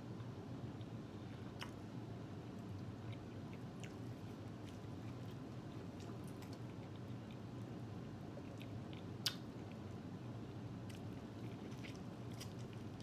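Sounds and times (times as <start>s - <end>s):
steady low hum: 0.0s - 13.0s
chewing corn on the cob: 0.8s - 13.0s
wet mouth clicks: 9.0s - 9.5s.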